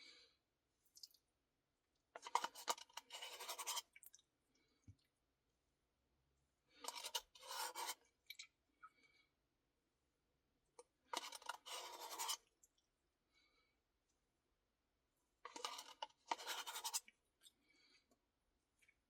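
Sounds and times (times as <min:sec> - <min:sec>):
spoon scraping a cup: 0:02.2 - 0:03.9, 0:06.8 - 0:08.0, 0:11.1 - 0:12.5, 0:15.5 - 0:17.1.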